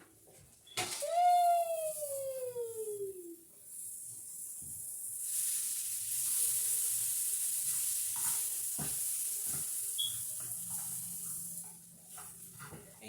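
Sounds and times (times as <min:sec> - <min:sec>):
food sizzling in a pan: 0:00.9 - 0:13.0.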